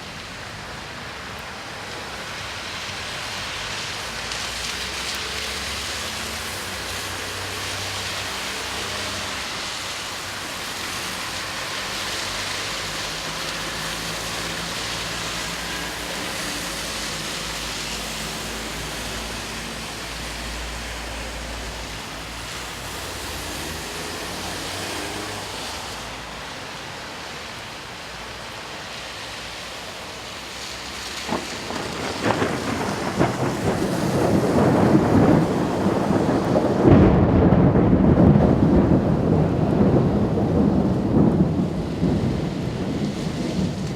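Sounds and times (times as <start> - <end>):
rain hiss: 0.0 - 43.9
thunder crack: 31.1 - 43.9
rumbling thunder: 31.2 - 43.9.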